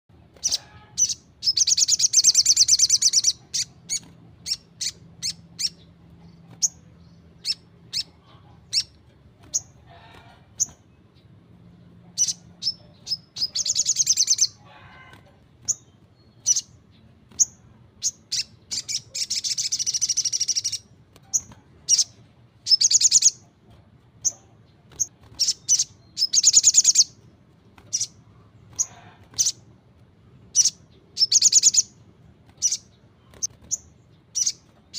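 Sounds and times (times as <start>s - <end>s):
bird chirping and trilling: 0.2s - 23.5s, 24.2s - 29.7s, 30.4s - 34.9s.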